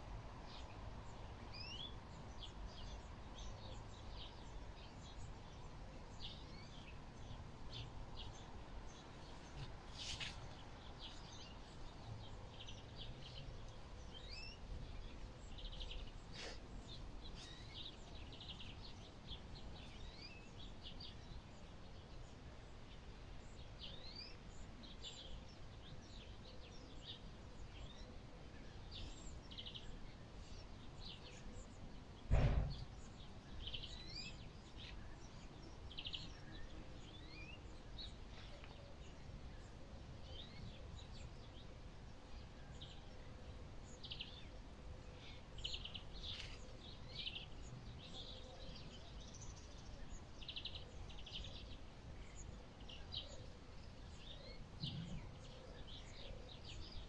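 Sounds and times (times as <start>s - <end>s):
low rumbling background noise: 0.0s - 57.0s
small birds chirping: 0.0s - 57.0s
loud thump: 32.3s - 32.9s.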